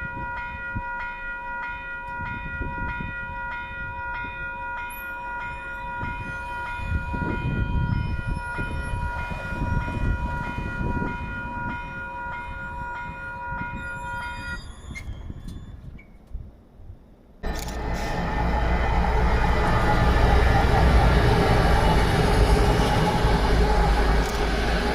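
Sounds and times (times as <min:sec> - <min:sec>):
level crossing bell ringing: 0:00.0 - 0:14.6
train passing with low rumble: 0:00.0 - 0:24.9.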